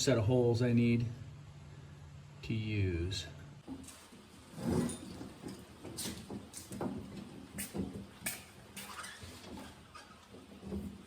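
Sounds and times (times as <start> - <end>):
faint steady hum: 0.0 - 4.1
steel knocks clunks and scrapes: 3.7 - 11.0.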